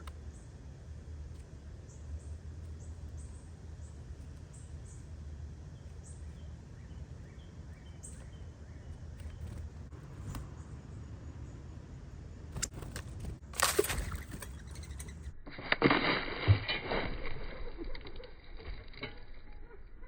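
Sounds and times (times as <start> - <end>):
small birds chirping: 0.0 - 15.4
low background rumble: 0.0 - 20.0.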